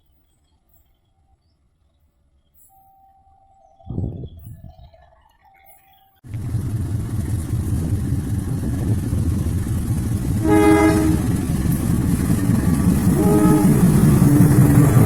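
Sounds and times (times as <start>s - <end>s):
diesel locomotive running: 6.3s - 15.0s
locomotive horn blast: 10.4s - 11.4s, 13.1s - 14.3s.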